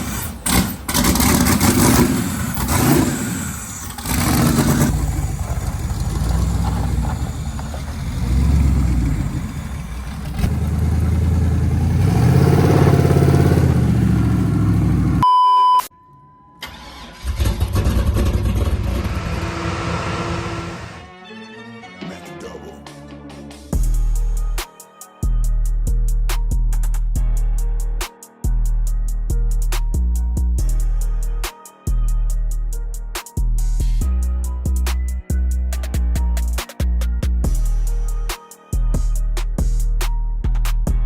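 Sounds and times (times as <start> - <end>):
car engine revving: 0.0 - 15.2, 17.2 - 21.1
short steady beep: 15.2 - 16.6.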